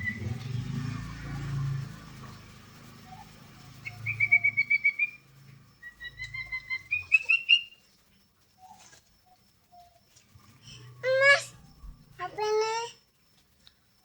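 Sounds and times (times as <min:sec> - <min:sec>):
bird whistled calls: 0:00.0 - 0:00.3, 0:03.0 - 0:07.8.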